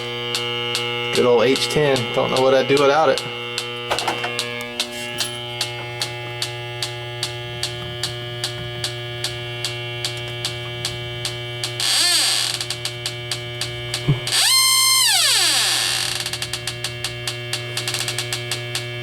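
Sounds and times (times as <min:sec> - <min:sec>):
synth chords over a beat: 0:00.0 - 0:11.8, 0:12.6 - 0:15.0.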